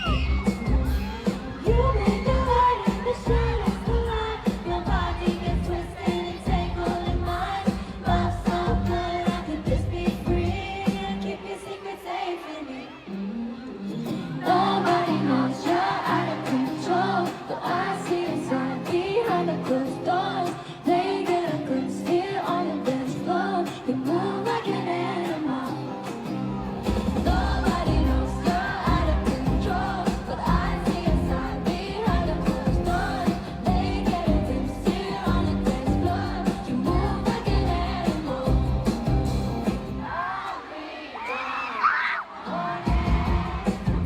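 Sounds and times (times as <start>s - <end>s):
heavy bass and drums: 0.0s - 10.7s, 26.9s - 40.0s, 42.9s - 44.0s
female group singing pop song: 0.0s - 44.0s.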